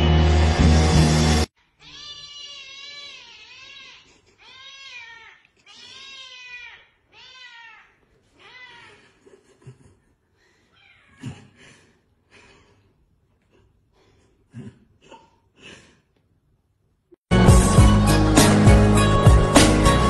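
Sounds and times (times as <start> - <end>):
cat meowing: 1.8 - 9.0.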